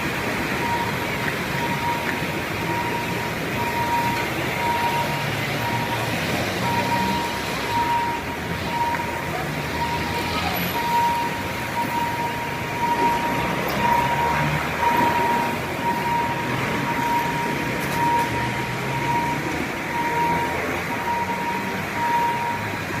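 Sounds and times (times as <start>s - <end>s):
road traffic noise: 0.0s - 23.0s
level-crossing warning tone pulses: 0.2s - 23.0s.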